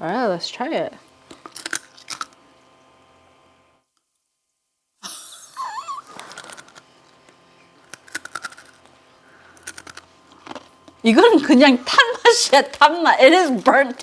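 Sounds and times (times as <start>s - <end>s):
snack sticks crunching and chewing: 1.3s - 2.4s, 6.1s - 11.0s.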